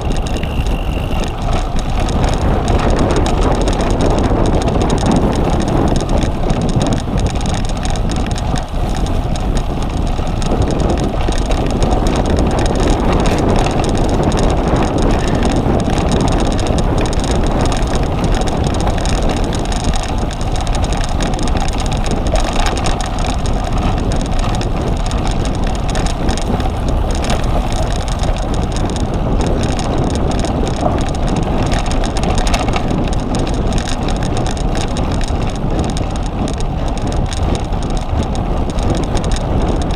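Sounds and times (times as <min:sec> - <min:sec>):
bike rattling: 0:00.0 - 0:39.9
wind rushing over microphone: 0:00.0 - 0:39.9.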